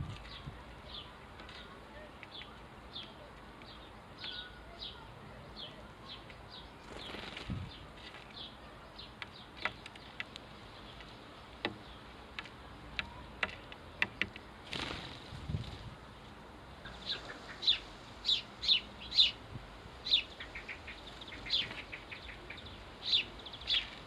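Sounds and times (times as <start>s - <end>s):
sparrows chirping: 0.0s - 24.0s
sharp ticks and taps: 9.2s - 14.5s.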